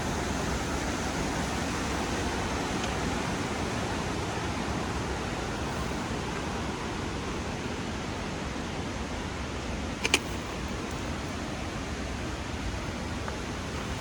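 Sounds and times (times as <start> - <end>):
sharp click: 10.0 - 11.0.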